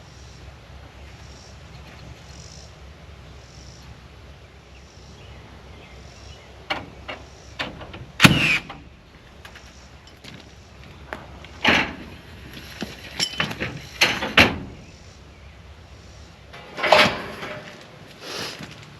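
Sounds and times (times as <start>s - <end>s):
low engine hum: 0.0s - 18.9s
metal clank with falling squeal: 13.0s - 14.8s, 16.6s - 17.7s.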